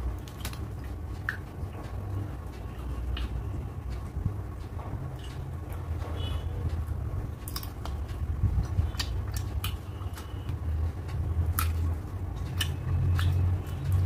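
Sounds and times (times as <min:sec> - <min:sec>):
chewing food: 0:02.6 - 0:03.5, 0:06.7 - 0:14.0
wet mouth clicks and smacks: 0:08.6 - 0:09.9, 0:11.5 - 0:14.0.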